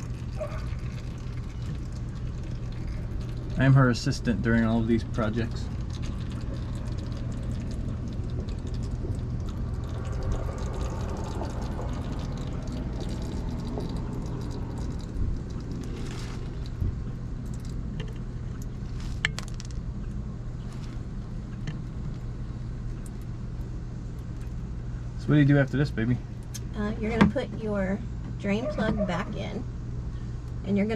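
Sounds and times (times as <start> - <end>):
oil trickling into plastic bucket: 0.0 - 20.0
steady low rumble: 0.0 - 30.9.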